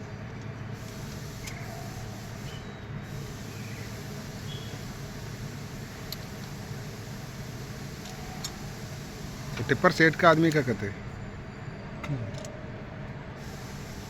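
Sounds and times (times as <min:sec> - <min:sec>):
engine droning: 0:00.7 - 0:14.0
faint clicks: 0:06.0 - 0:06.6.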